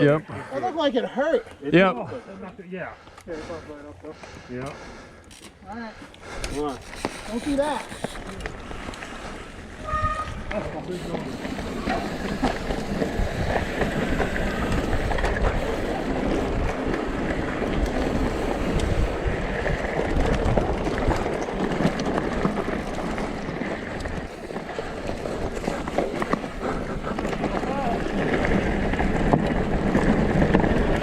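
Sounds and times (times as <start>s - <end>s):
bike rattling over bumps: 6.2s - 31.0s
tyres rolling over dirt: 6.4s - 31.0s
wind buffeting microphone: 7.8s - 10.8s, 11.4s - 31.0s.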